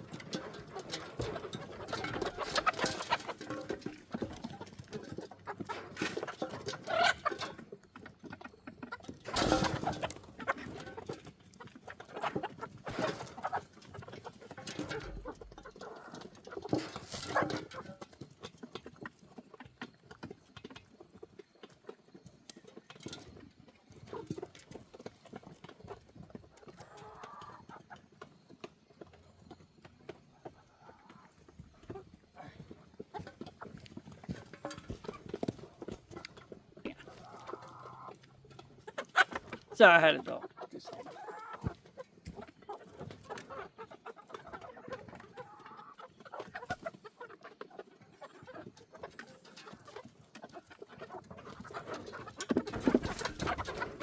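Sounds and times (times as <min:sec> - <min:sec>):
knocks and rattles: 0:00.0 - 0:07.7, 0:09.0 - 0:18.1, 0:51.6 - 0:54.0
hens clucking: 0:00.0 - 0:54.0.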